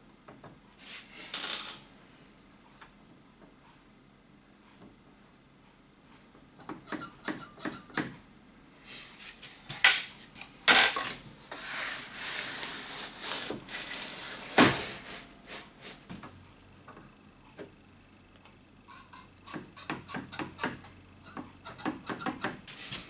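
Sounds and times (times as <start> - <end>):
rubbing sliding noise: 11.5 - 16.0.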